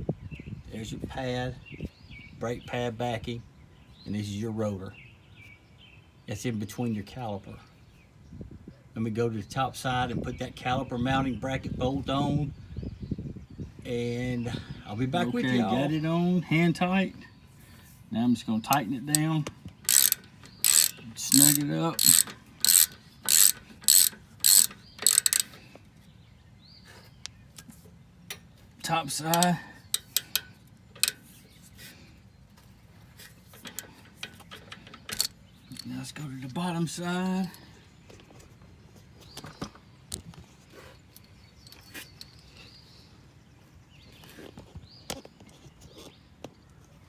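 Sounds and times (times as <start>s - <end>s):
tools clicking and knocking: 18.7s - 25.7s, 29.2s - 31.3s, 33.5s - 35.9s
ratchet wrench ratcheting: 19.9s - 25.6s, 29.1s - 31.3s, 35.1s - 35.9s.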